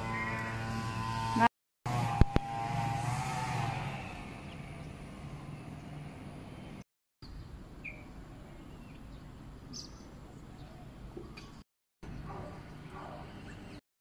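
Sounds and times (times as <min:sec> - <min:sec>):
bird chirps: 0:06.6 - 0:13.8.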